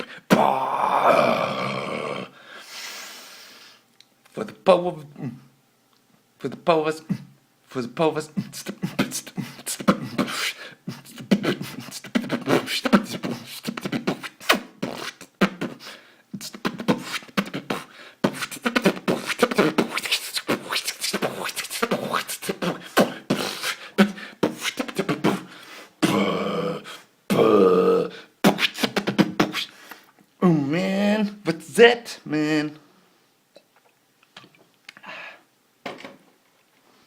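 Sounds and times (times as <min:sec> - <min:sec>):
hummed vocal tones: 0:00.0 - 0:02.4, 0:08.2 - 0:29.7
man beatboxing: 0:07.9 - 0:29.9.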